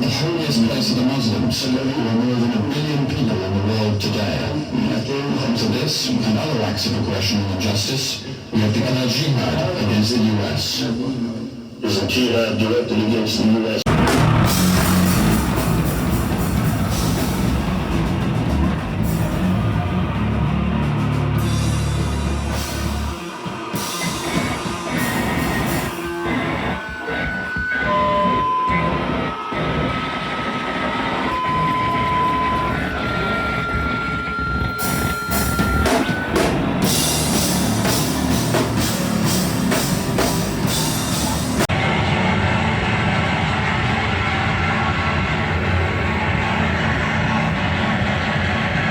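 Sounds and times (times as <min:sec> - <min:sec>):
drum hits: 0:13.9 - 0:27.1, 0:34.6 - 0:41.7
distorted noise rock: 0:13.9 - 0:48.9
high steady tones: 0:21.3 - 0:41.7.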